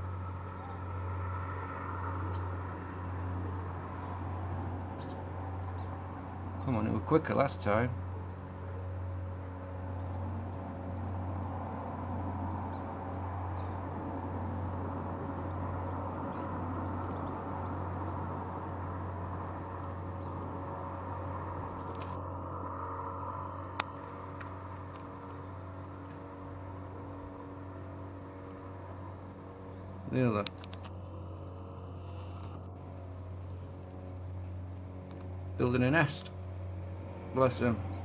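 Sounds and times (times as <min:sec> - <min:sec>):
low motor hum: 0:00.0 - 0:38.0
outdoor background noise: 0:00.0 - 0:38.0.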